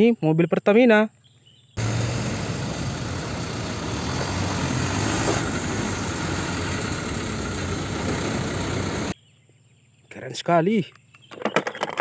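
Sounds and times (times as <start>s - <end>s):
road traffic noise: 1.8s - 9.2s
truck diesel engine running: 1.8s - 9.2s.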